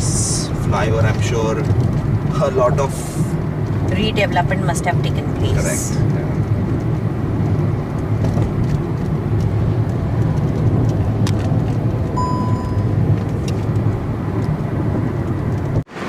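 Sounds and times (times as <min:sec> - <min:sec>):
car road and engine rumble: 0:00.0 - 0:16.0
short high beep: 0:12.2 - 0:13.0.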